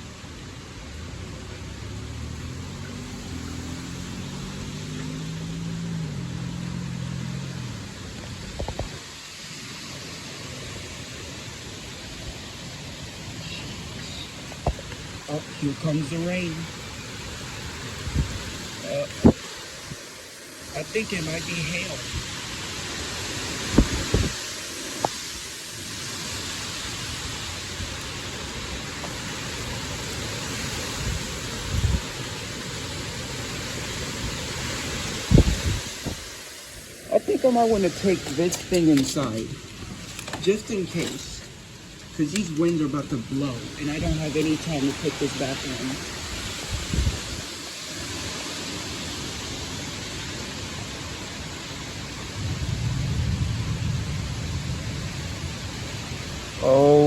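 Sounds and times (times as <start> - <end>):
heavy rain pouring: 0.0 - 57.0
storm wind rumbling: 11.7 - 25.4, 26.2 - 56.7
strong wind rushing: 23.6 - 24.4, 35.1 - 36.8, 46.0 - 47.6.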